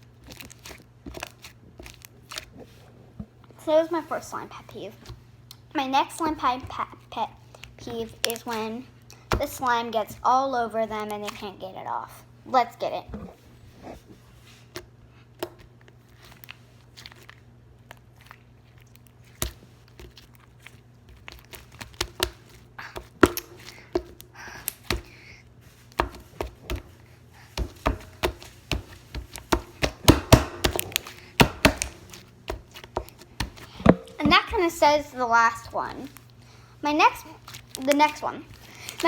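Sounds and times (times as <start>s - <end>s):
slime clicking and popping: 29.4s - 34.4s.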